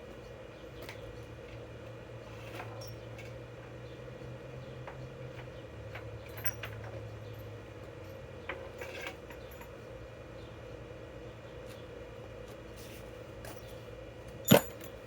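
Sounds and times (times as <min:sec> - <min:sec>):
low background hum: 0:00.0 - 0:15.0
metal tools clinking: 0:06.3 - 0:06.9, 0:14.4 - 0:15.0.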